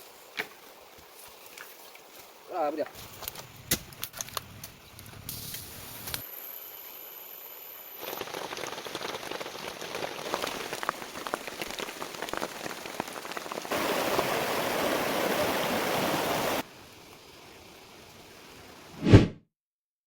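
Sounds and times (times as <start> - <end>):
heavy rain: 8.0 - 18.9.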